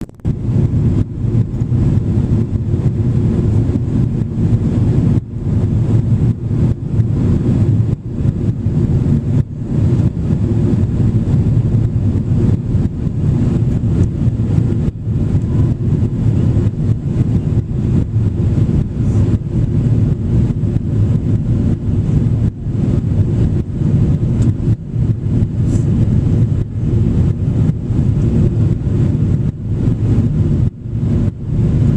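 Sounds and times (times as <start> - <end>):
airliner cabin noise in flight: 0.0 - 31.9.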